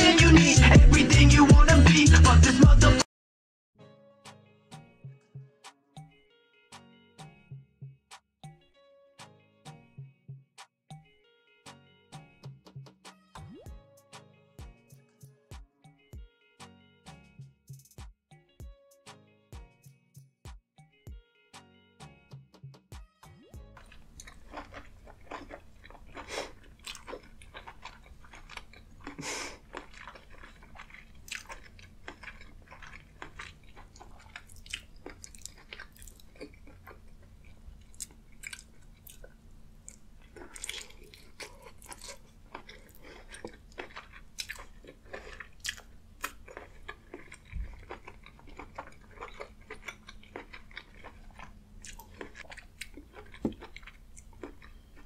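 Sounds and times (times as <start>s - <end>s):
person biting and chewing food: 23.6s - 55.0s.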